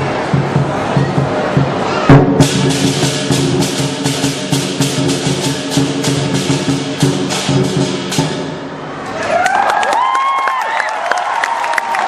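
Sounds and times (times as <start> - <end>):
big drum beating: 0.0 - 9.0
cymbals clashing: 0.0 - 9.1.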